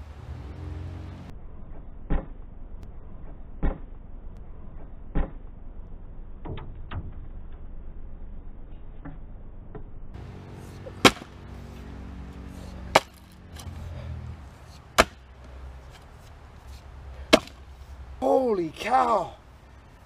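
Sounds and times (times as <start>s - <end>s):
axe striking wood: 10.9s - 11.4s, 12.9s - 13.8s, 14.7s - 15.3s, 17.2s - 17.7s.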